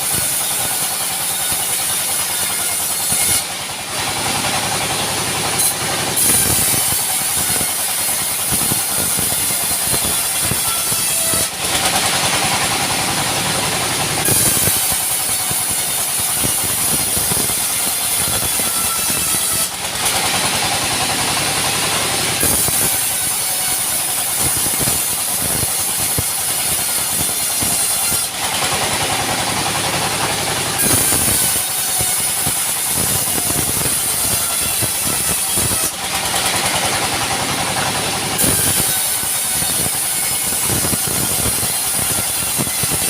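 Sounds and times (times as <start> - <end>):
engine drone: 3.4 - 43.0
high shrill whine: 14.2 - 20.7.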